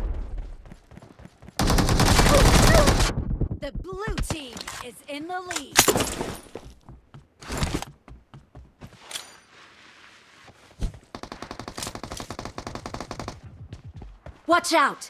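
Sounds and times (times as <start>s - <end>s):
rapid automatic gunfire: 1.6s - 3.3s, 11.2s - 13.5s.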